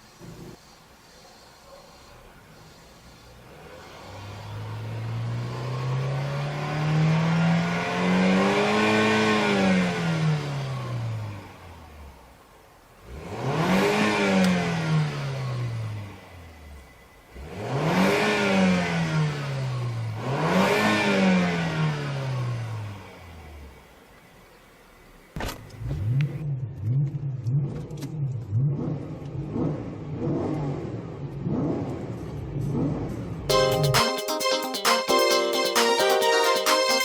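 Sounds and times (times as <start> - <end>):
car engine revving: 3.4 - 12.2, 13.0 - 16.2, 25.8 - 33.5.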